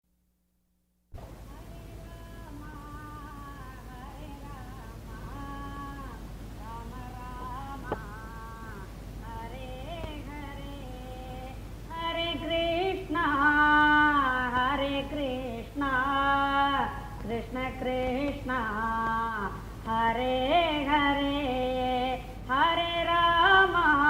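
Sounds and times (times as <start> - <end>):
sharp click: 7.8 - 8.1.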